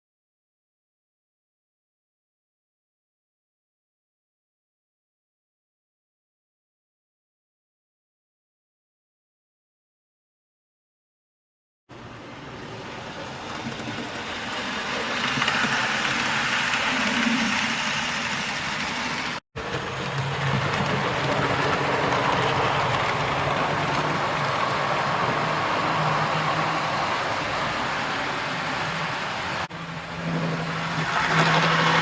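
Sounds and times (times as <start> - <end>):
model train wheels rumbling: 12.4 - 32.0.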